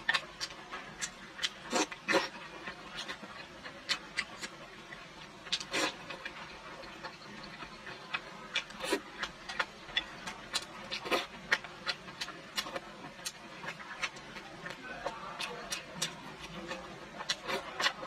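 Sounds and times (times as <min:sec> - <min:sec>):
person chewing with wet mouth sounds: 0:00.0 - 0:18.0.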